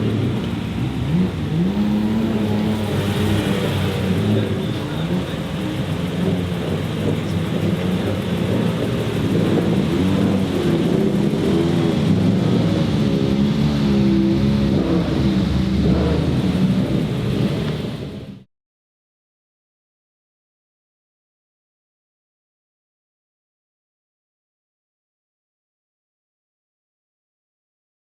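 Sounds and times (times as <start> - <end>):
racing car engines passing: 0.0 - 18.4.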